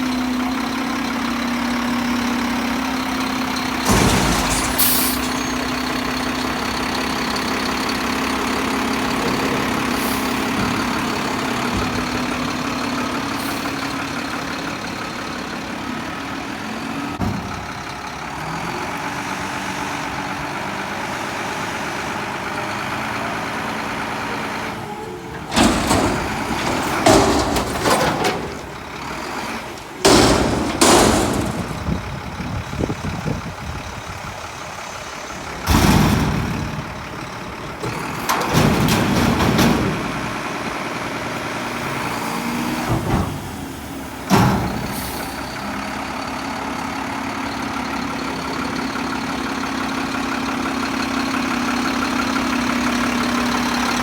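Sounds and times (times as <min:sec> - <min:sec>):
garbage truck running: 0:00.0 - 0:54.0
loud metal bangs and clatter: 0:03.2 - 0:14.1, 0:25.5 - 0:29.4, 0:30.0 - 0:33.2, 0:35.2 - 0:41.6.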